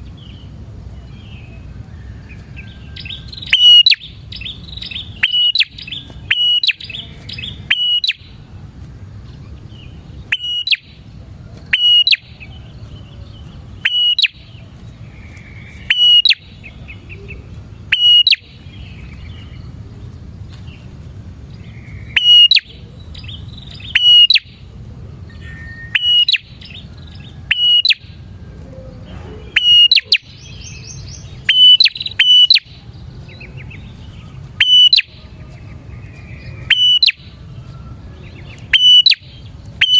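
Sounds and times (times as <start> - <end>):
low steady hum: 0.0 - 39.9
bird high sharp chirps: 2.3 - 8.5, 9.3 - 19.8, 21.5 - 24.6, 25.3 - 28.2, 29.4 - 39.9.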